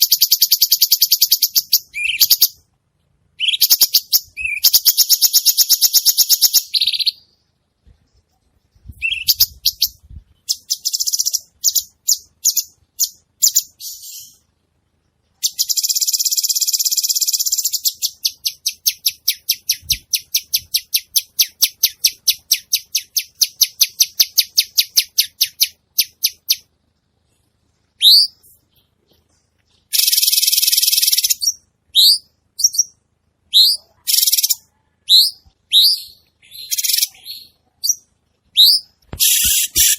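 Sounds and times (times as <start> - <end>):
bird singing rapid trills: 8.9 - 14.4, 15.4 - 26.7, 28.0 - 39.9.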